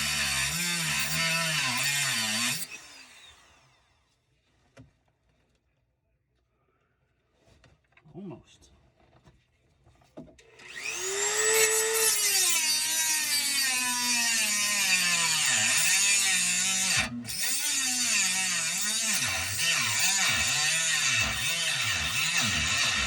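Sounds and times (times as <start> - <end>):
power cutting tool whine: 0.0 - 3.8, 10.6 - 23.0.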